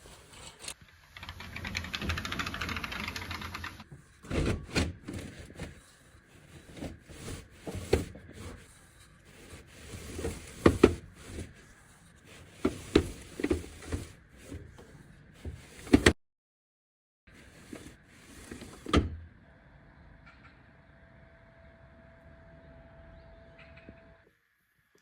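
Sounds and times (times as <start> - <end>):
objects knocking and rubbing: 0.0 - 16.2.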